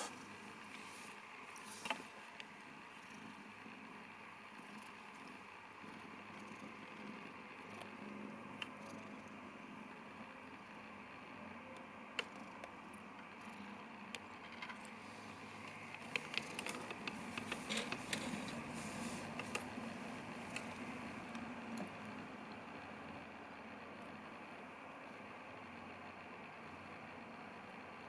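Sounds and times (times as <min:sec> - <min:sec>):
rustling: 0:15.0 - 0:20.9.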